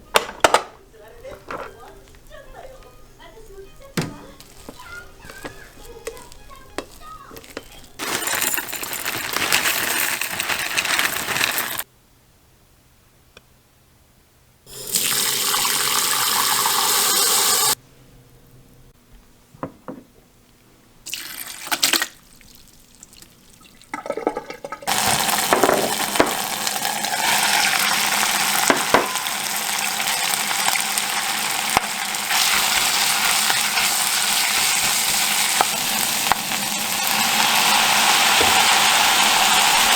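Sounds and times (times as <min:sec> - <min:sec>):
knocks: 0:04.0 - 0:04.4
water running from a tap: 0:14.7 - 0:17.8, 0:21.1 - 0:39.9.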